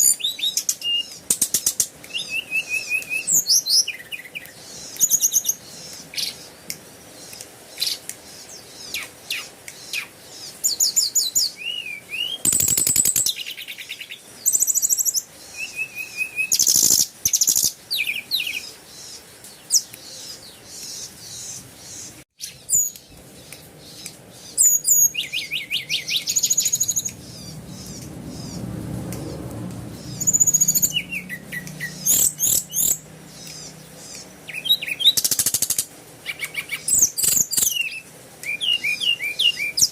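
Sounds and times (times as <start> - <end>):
birds chirping and trilling: 0.0 - 39.9
low hum: 25.9 - 34.0.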